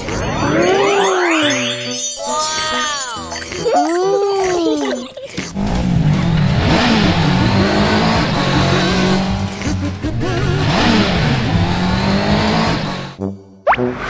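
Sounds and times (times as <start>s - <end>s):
cartoon car engine revving: 5.5s - 14.0s.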